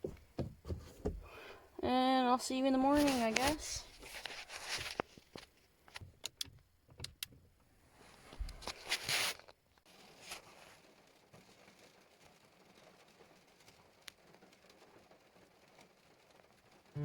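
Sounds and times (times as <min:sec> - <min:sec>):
rustle: 0:08.0 - 0:17.0.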